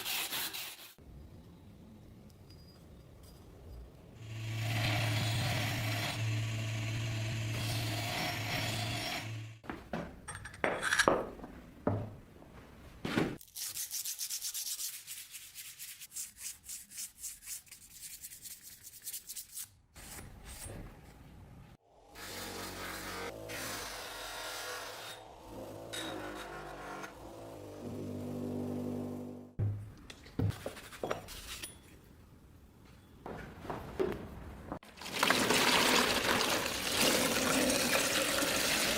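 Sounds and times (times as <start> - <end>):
hand sanding strokes: 0.0 - 1.0, 13.6 - 19.7
power tool humming: 4.2 - 9.6.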